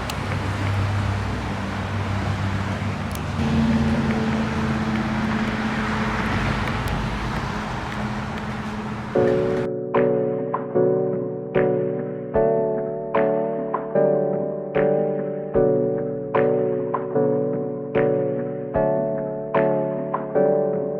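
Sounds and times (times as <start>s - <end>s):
low motor hum: 0.0s - 9.7s
road traffic rumble: 0.0s - 9.7s
piano-like music: 0.0s - 20.9s.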